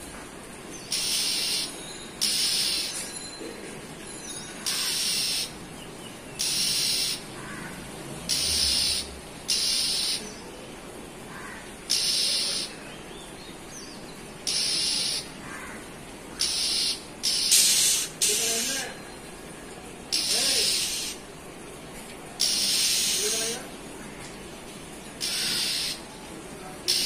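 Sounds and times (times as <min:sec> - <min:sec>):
bird harsh hissing call: 0:00.9 - 0:03.0, 0:04.6 - 0:05.6, 0:06.4 - 0:10.5, 0:11.3 - 0:12.8, 0:14.4 - 0:18.9, 0:20.1 - 0:21.2, 0:22.4 - 0:23.7, 0:25.2 - 0:26.2.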